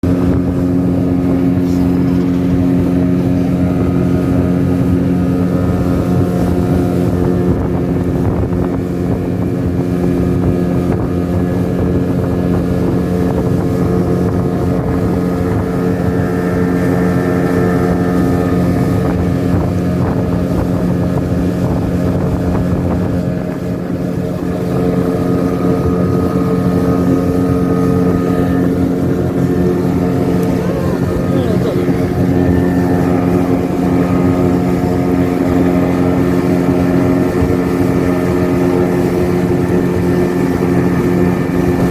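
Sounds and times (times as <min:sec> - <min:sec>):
speedboat motor running: 0:00.0 - 0:41.9.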